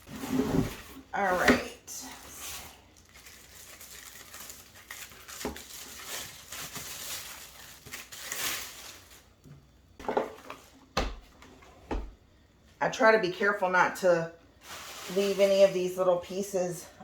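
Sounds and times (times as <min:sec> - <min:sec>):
plastic and foam packing rustling: 0:00.0 - 0:12.1, 0:14.6 - 0:15.8.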